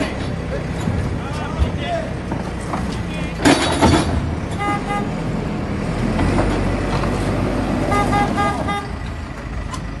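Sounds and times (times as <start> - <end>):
short horn toots: 4.6 - 5.2, 7.9 - 8.9.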